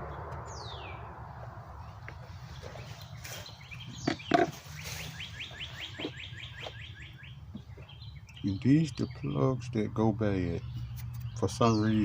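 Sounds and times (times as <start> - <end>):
high bird chirps: 0.1 - 1.2, 1.8 - 9.7.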